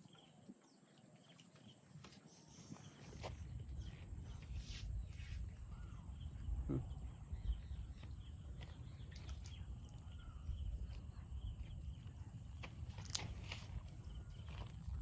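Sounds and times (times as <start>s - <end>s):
faint bird chirps: 0.0s - 15.0s
wind rumble on microphone: 3.0s - 15.0s.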